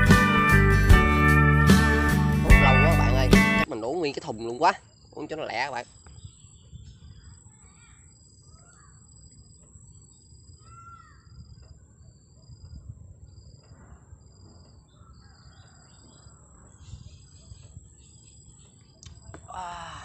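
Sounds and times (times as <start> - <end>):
distant bird calls: 3.7 - 19.8.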